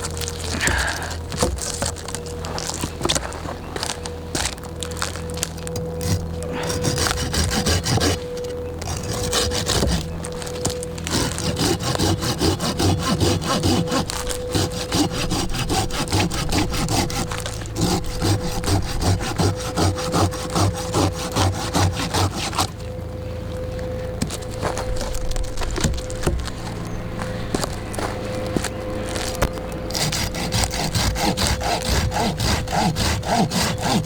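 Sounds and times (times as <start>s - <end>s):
hand saw cutting wood: 0.0s - 22.8s, 29.1s - 34.0s.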